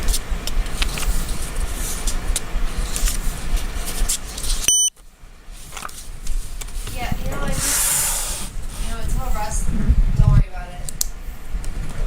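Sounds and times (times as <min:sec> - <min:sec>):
short electronic beep: 0:04.7 - 0:04.9.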